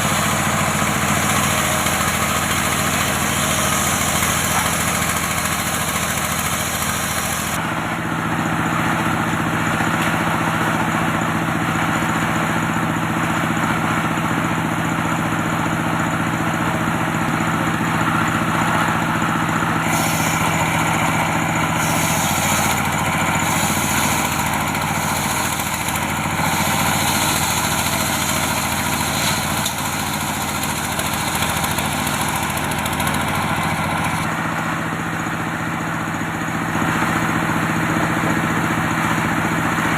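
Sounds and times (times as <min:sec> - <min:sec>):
circular saw cutting wood: 0:00.0 - 0:07.7, 0:16.4 - 0:34.3.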